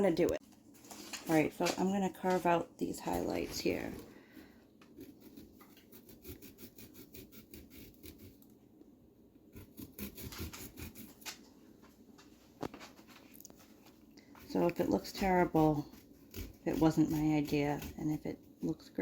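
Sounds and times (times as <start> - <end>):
carving tool scraping pumpkin: 2.4 - 8.5, 9.4 - 11.3, 14.2 - 19.0.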